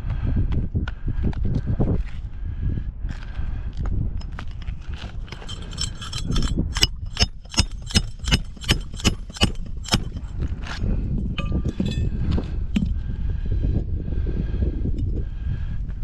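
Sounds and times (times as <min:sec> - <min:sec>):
hammer striking metal: 0:05.5 - 0:10.3, 0:11.4 - 0:12.1.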